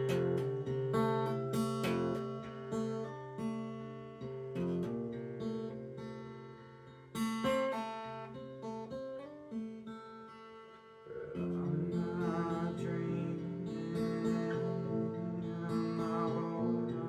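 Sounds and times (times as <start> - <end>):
acoustic guitar strumming: 0.0 - 17.0
person singing: 11.1 - 17.0.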